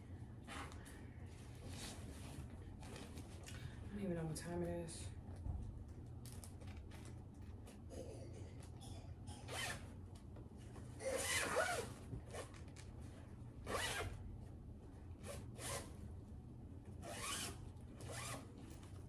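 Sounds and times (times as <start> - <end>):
zipper rasping: 9.4 - 9.9, 11.0 - 12.6, 13.6 - 14.2, 15.2 - 15.9, 17.0 - 18.5.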